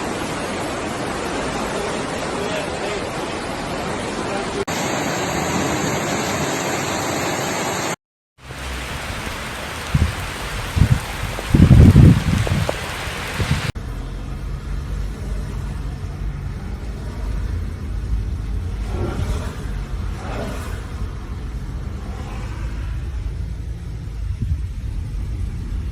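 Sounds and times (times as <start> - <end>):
rushing floodwater: 0.0 - 14.0
heavy rain: 0.0 - 25.9.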